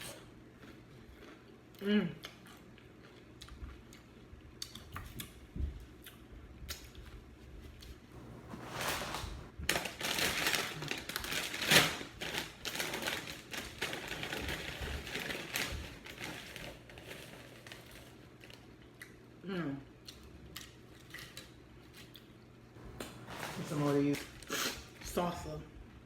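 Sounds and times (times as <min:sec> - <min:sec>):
chewing crunchy chips: 0:00.0 - 0:07.2, 0:20.0 - 0:22.5.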